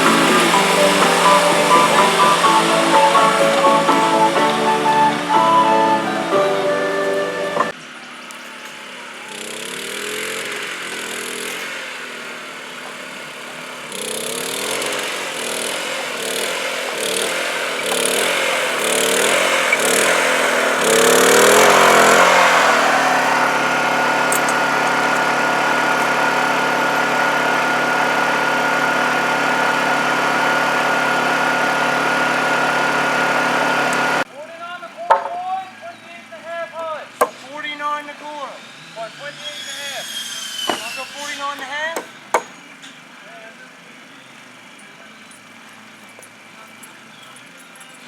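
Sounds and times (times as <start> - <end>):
engine revving: 0.0 - 7.7, 9.3 - 34.3.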